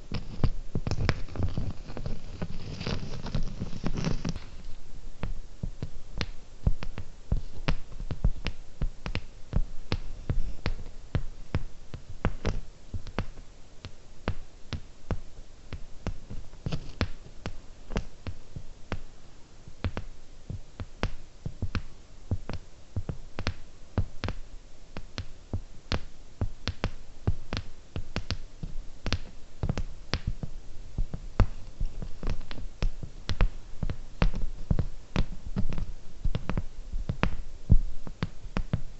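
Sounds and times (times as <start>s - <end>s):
dull low thuds: 5.2s - 13.4s, 26.4s - 38.9s.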